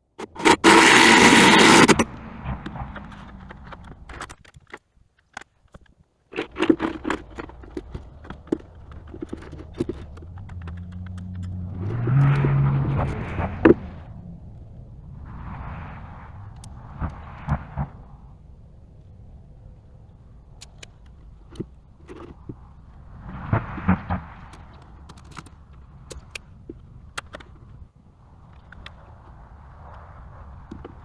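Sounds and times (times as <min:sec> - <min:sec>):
engine revving: 0:00.2 - 0:03.3, 0:10.4 - 0:14.3
loud scraping rush: 0:00.2 - 0:03.7.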